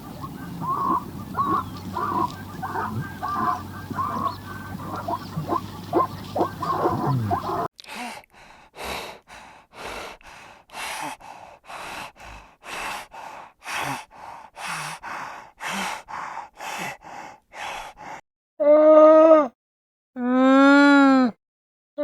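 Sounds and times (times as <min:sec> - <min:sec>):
animal breathing heavily: 0:00.0 - 0:07.7, 0:08.4 - 0:18.2
loud drawn-out animal call: 0:00.0 - 0:07.7.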